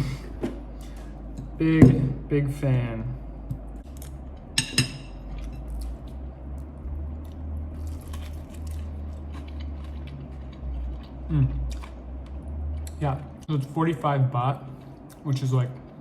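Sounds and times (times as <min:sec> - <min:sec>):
low hum: 0:00.0 - 0:16.0
person chewing fried chicken: 0:05.2 - 0:13.5.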